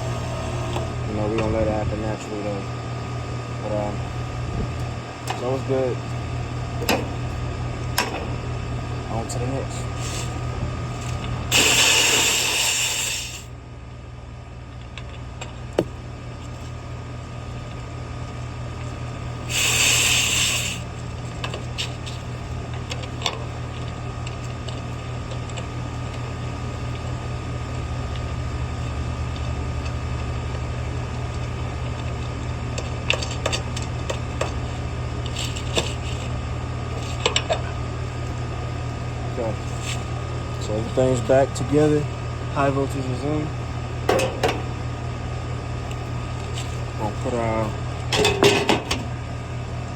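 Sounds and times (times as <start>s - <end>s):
steady low hum: 0.0s - 49.9s
short loud hiss bursts: 11.5s - 13.5s, 19.5s - 20.9s.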